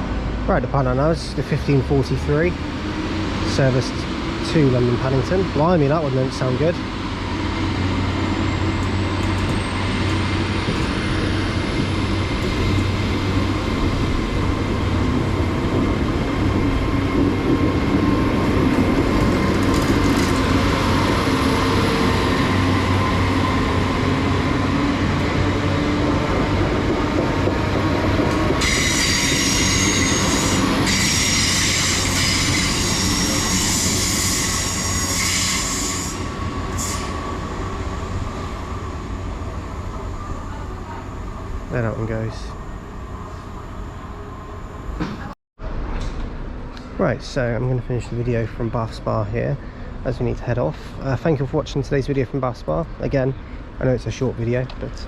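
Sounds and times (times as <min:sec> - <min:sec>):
train diesel engine drone: 0:00.0 - 0:55.0
high-pitched squealing: 0:28.6 - 0:37.3.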